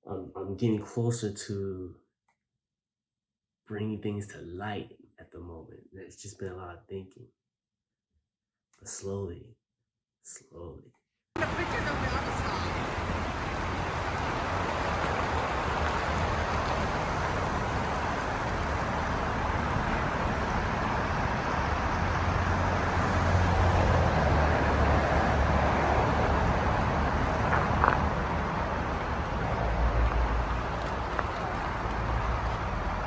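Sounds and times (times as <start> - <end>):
car driving road noise: 11.4 - 33.0.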